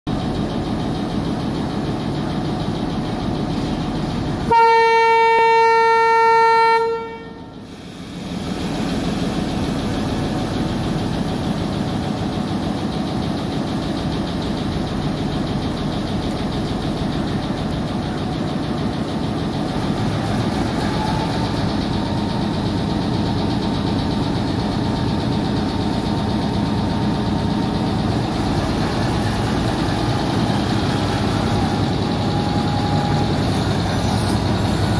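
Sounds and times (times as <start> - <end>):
train running noise: 0.1 - 34.9
diesel locomotive horn: 4.4 - 7.7.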